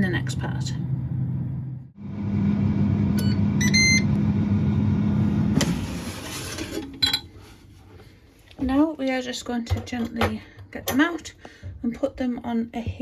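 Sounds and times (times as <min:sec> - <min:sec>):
air fryer fan humming: 0:00.0 - 0:07.1.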